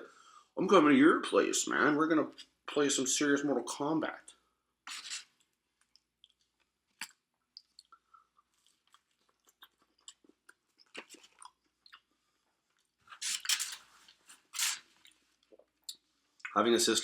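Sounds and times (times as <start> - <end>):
chewing food: 5.8 - 16.6
wet mouth clicks: 5.9 - 12.1.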